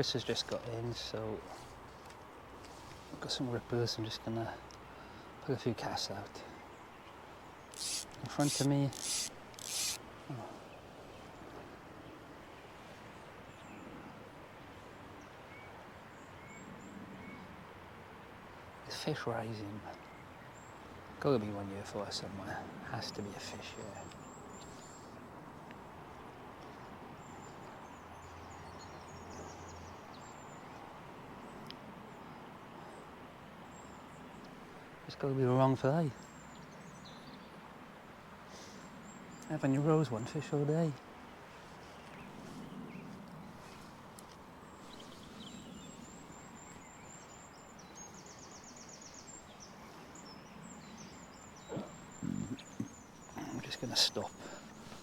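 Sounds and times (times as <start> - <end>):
small bird singing: 7.6 - 10.0, 36.1 - 37.6, 44.7 - 55.0.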